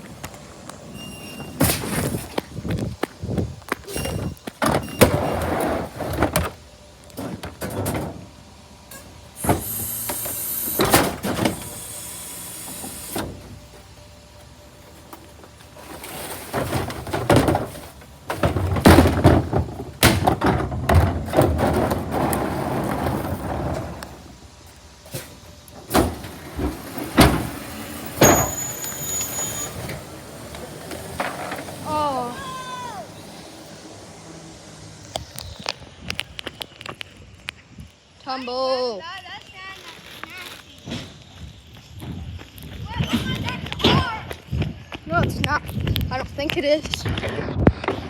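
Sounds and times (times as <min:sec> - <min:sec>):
garbage truck hiss: 0:00.0 - 0:35.9
garbage truck knocks and clunks: 0:00.9 - 0:13.8, 0:15.4 - 0:33.6.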